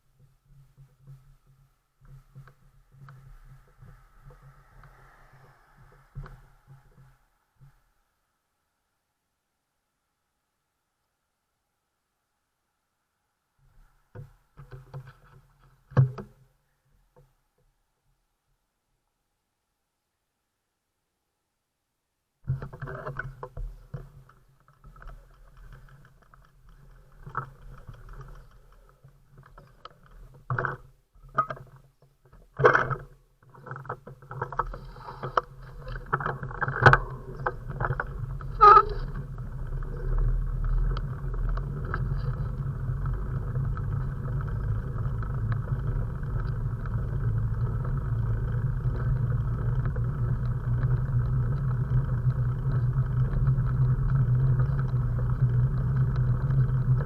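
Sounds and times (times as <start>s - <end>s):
wind rushing: 3.4s - 7.3s.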